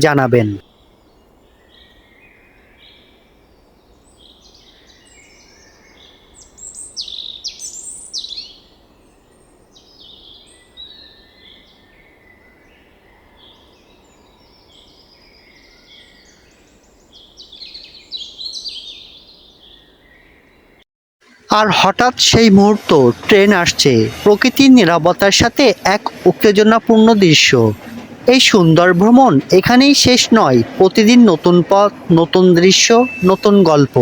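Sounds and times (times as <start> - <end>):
birds chirping and singing: 4.0 - 8.8, 9.8 - 20.7, 23.6 - 34.0.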